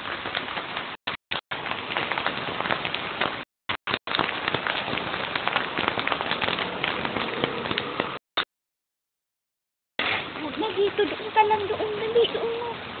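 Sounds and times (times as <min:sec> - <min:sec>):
rain pattering: 0:00.0 - 0:08.2, 0:10.0 - 0:13.0.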